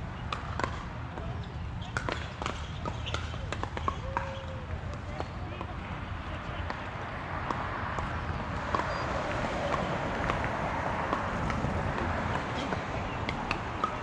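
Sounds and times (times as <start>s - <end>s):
wind buffeting microphone: 7.1s - 14.0s.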